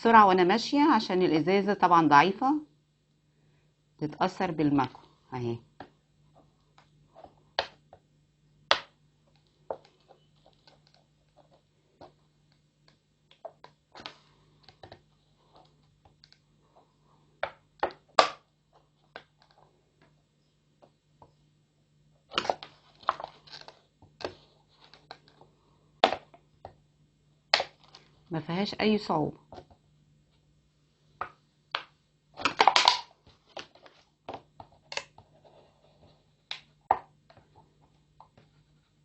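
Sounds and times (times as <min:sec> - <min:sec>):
faint low hum: 0:00.0 - 0:39.0.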